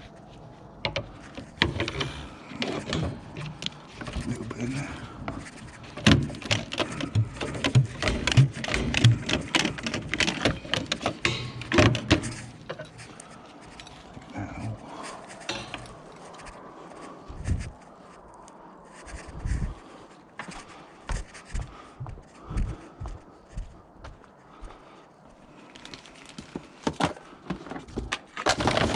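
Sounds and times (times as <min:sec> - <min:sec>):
scrap metal clattering: 0:00.9 - 0:16.5.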